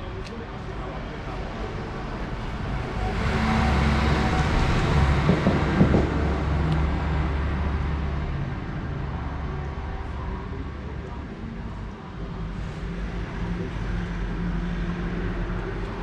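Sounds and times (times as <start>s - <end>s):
road noise: 0.0s - 16.0s
vehicle engine passing by: 2.8s - 8.7s.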